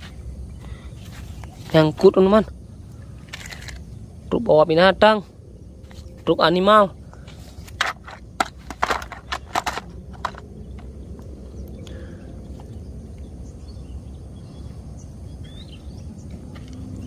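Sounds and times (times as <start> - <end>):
low background rumble: 0.0 - 17.0
plastic toys clicking and knocking: 7.8 - 10.9.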